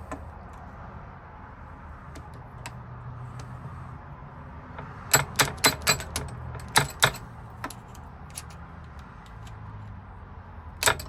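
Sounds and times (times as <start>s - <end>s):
metallic taps on lock cylinder: 4.7s - 9.6s.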